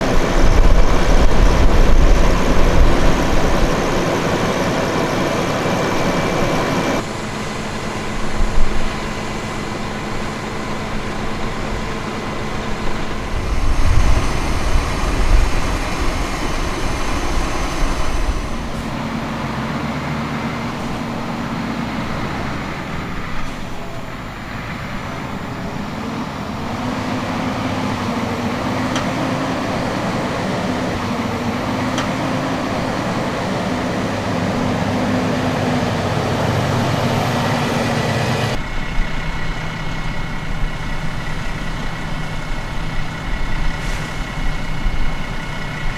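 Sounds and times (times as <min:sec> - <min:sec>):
heavy low rumbling: 0:00.0 - 0:07.0, 0:07.8 - 0:45.9
tractor diesel engine under load: 0:00.0 - 0:45.9.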